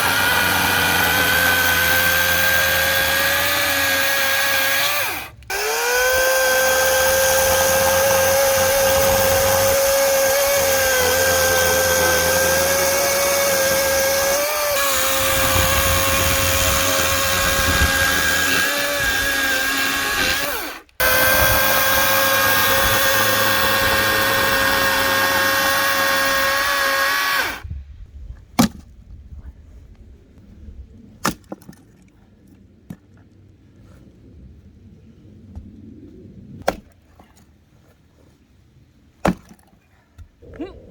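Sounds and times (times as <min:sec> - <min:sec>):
power tool motor whining: 0:00.0 - 0:27.6.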